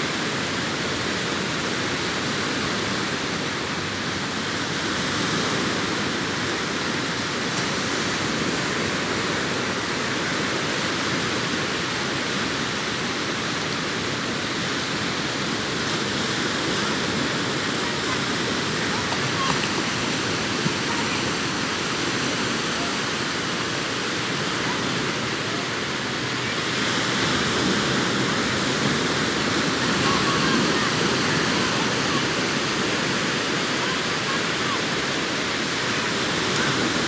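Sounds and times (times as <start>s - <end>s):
sea waves breaking on beach: 0.0s - 37.0s.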